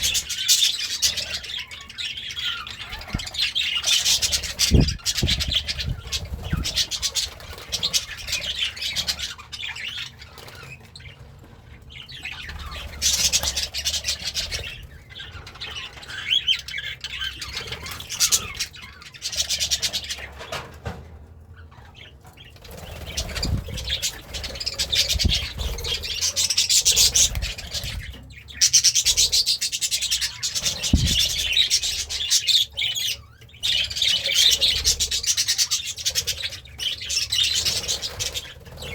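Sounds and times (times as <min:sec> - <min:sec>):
budgerigar chattering and warbling: 0:22.8 - 0:38.9
low thumps: 0:30.8 - 0:31.7.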